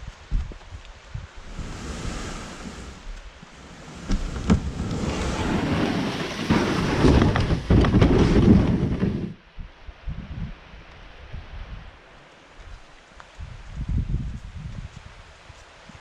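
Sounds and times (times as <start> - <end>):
wind buffeting microphone: 0.0 - 11.9, 13.4 - 16.0.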